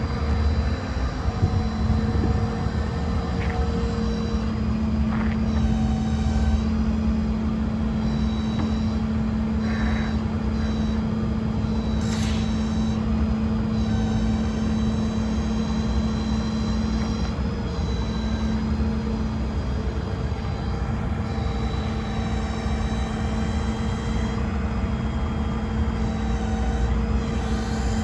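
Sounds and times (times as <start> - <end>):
truck engine humming: 0.0 - 28.0
thin high-pitched whine: 11.9 - 13.1.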